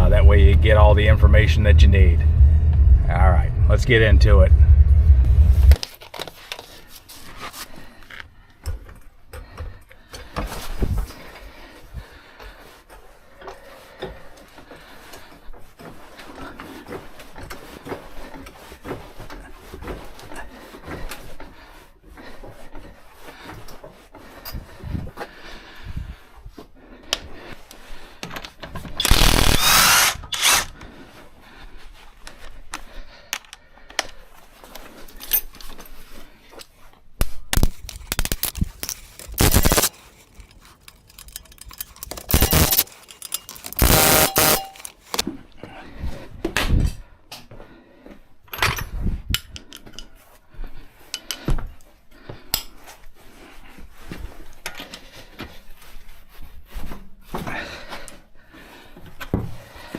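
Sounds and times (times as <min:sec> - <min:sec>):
power tool bursts: 0:29.0 - 0:30.7, 0:39.4 - 0:39.9, 0:42.2 - 0:42.9, 0:43.6 - 0:45.0
tools clicking and clanking: 0:37.8 - 0:45.2.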